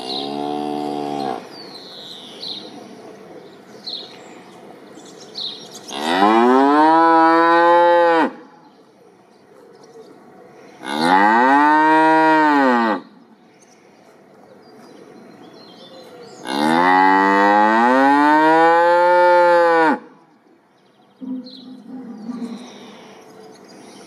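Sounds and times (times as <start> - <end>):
cow mooing: 5.9 - 8.4, 10.8 - 13.0.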